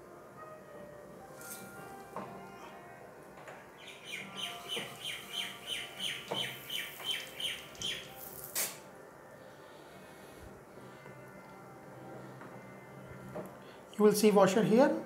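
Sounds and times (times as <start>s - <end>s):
bird chirping falling notes: 3.8s - 8.6s.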